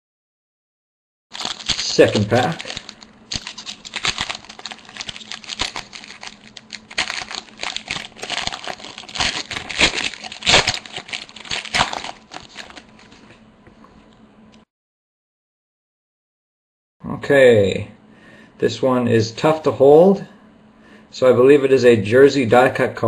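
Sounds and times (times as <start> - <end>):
wrapper tearing and crinkling: 1.3 - 13.3.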